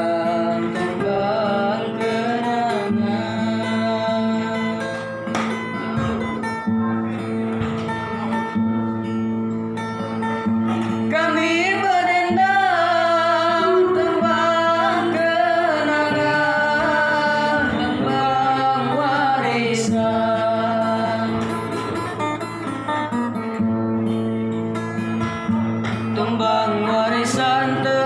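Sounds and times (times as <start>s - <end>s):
person singing a folk melody: 0.0s - 6.3s, 10.7s - 22.8s, 25.6s - 28.0s
plucked acoustic guitar: 0.0s - 28.0s.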